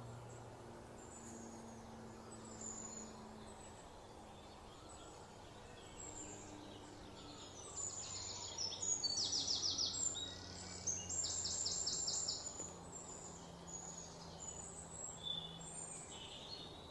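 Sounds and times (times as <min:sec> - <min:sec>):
birds singing trills: 0:00.0 - 0:16.9
outdoor background noise: 0:00.0 - 0:16.9.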